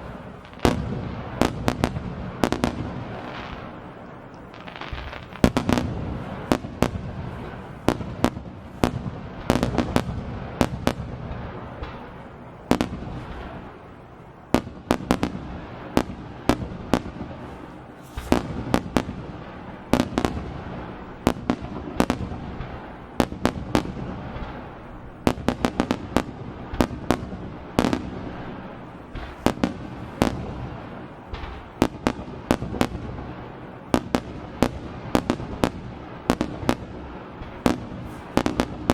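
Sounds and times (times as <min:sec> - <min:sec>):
firework shells bursting: 0:00.0 - 0:38.9.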